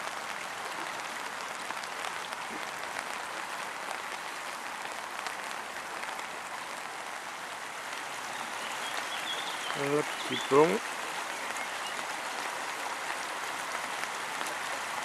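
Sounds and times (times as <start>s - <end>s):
rain pattering: 0.0s - 15.0s
stream running over rocks: 0.0s - 15.0s.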